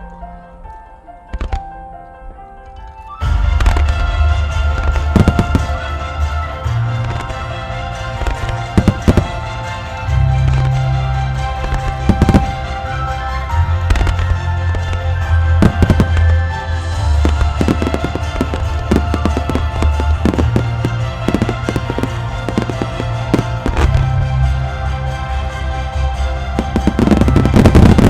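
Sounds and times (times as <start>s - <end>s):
orchestral music: 0.0s - 28.0s
fireworks bursting: 3.2s - 10.8s, 11.6s - 24.1s, 26.6s - 28.0s.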